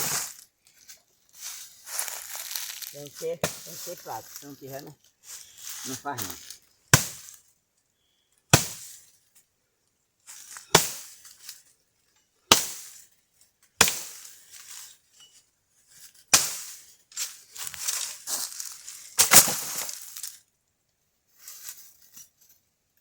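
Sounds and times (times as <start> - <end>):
axe chopping firewood: 3.4 - 3.8, 6.9 - 7.4, 8.5 - 9.0, 10.6 - 11.3, 12.5 - 13.0, 13.8 - 14.4, 16.3 - 16.8, 19.2 - 19.8.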